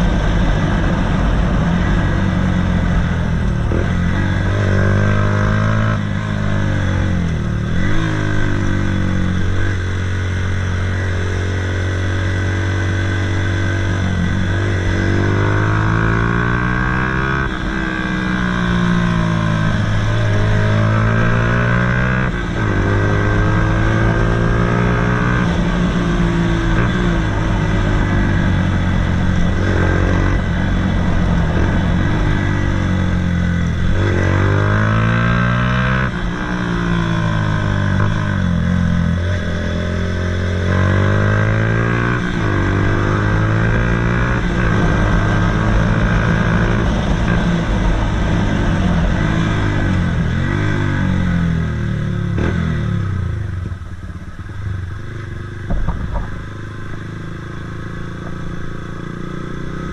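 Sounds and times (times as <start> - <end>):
motorcycle engine revving: 0.0 - 59.9
short knock: 55.7 - 56.4.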